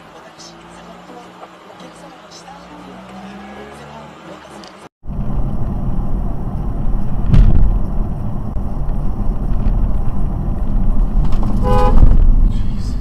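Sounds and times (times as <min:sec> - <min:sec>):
car driving rumble: 0:00.0 - 0:13.0
sharp knock: 0:07.2 - 0:07.8.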